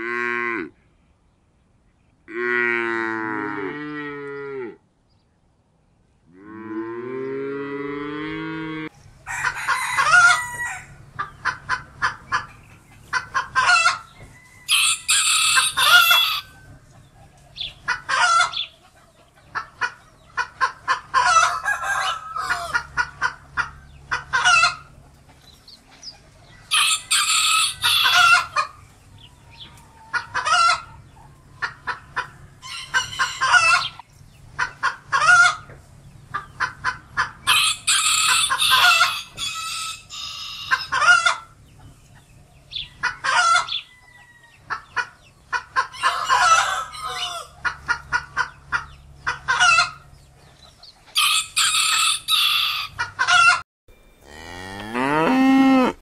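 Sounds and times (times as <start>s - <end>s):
cow mooing: 2.3s - 4.8s, 6.3s - 8.9s, 53.9s - 56.0s
chicken clucking: 8.9s - 53.6s
rooster crowing: 9.2s - 11.0s, 13.7s - 16.8s, 21.2s - 22.9s, 26.6s - 28.7s, 32.6s - 34.0s, 37.5s - 41.2s, 43.3s - 44.7s, 45.9s - 47.6s, 51.2s - 53.6s.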